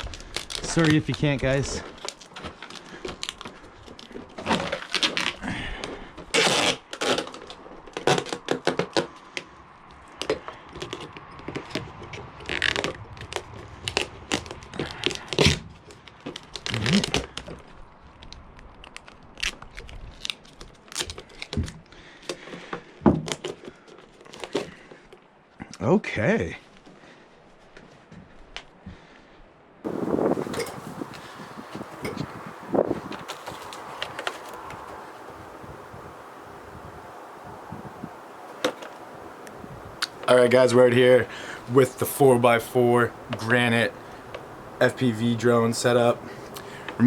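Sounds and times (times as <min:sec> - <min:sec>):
duct tape ripping: 0:00.0 - 0:09.4, 0:11.6 - 0:17.5, 0:18.2 - 0:21.9
knocks and scrapes of handling: 0:00.0 - 0:17.8, 0:29.9 - 0:35.3.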